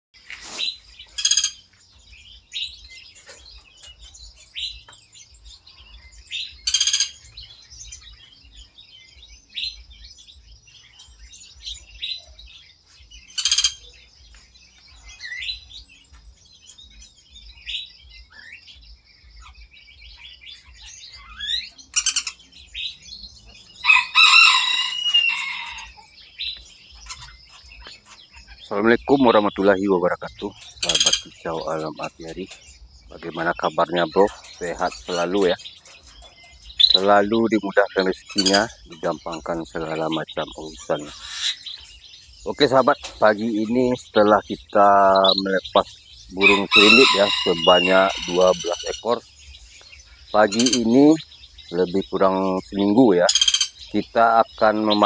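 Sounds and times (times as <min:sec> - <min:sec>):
small birds chirping: 0:00.1 - 0:55.0
warbling bird call: 0:00.3 - 0:01.7, 0:06.2 - 0:08.1, 0:13.3 - 0:14.1, 0:20.3 - 0:55.0.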